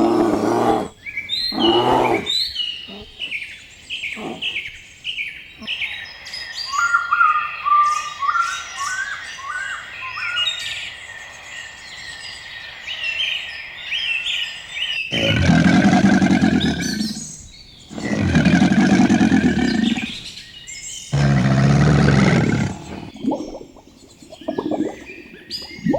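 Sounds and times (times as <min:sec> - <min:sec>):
long low animal calls: 0:00.0 - 0:03.4, 0:04.0 - 0:04.7, 0:15.1 - 0:20.3, 0:21.1 - 0:23.4
songbirds chirping and singing: 0:00.0 - 0:25.9.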